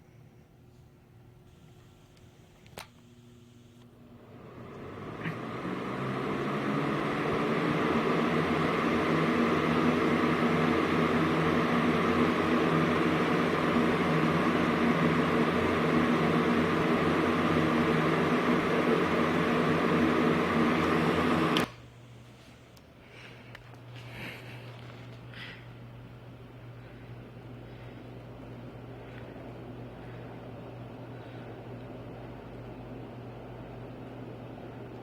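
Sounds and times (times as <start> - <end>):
quiet low hum: 0.0 - 4.2
electric fan motor hum: 1.1 - 35.0.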